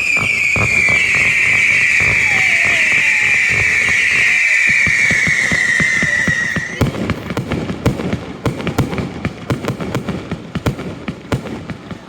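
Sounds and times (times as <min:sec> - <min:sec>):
firework whistle: 0:00.0 - 0:07.4
crackling firework bangs: 0:00.0 - 0:12.0
dull firework thuds: 0:00.0 - 0:12.0.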